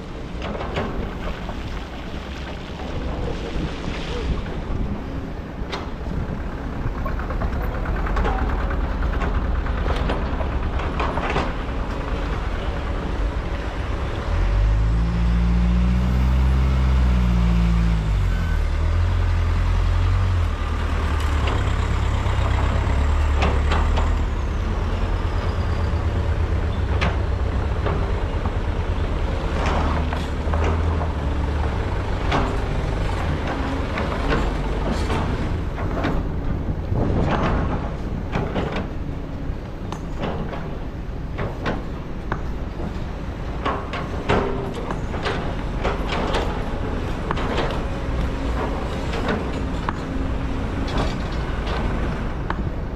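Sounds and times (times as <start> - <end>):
machine knocks and clanks: 0.0 - 1.8, 5.5 - 14.2, 20.5 - 52.9
excavator diesel engine revving: 5.3 - 39.6.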